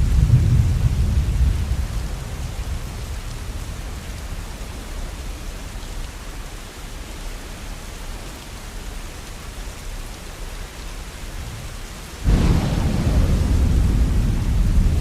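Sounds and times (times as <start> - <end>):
thunder clap rumbling: 0.0 - 3.7, 12.2 - 15.0
rain falling: 0.0 - 15.0.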